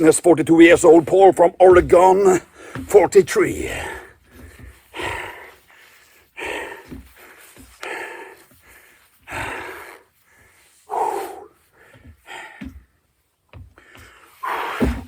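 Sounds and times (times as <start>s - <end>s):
man breathing heavily: 2.4s - 2.9s, 3.5s - 15.0s.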